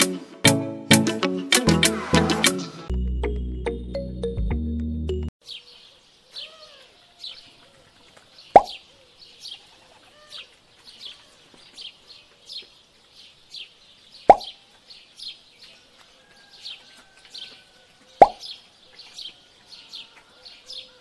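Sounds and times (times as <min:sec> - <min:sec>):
small birds chirping: 0:05.4 - 0:21.0
lower bird calls: 0:05.5 - 0:12.7, 0:13.6 - 0:15.8, 0:17.4 - 0:21.0
sharp plop: 0:08.6 - 0:08.8, 0:14.3 - 0:14.5, 0:18.2 - 0:18.4.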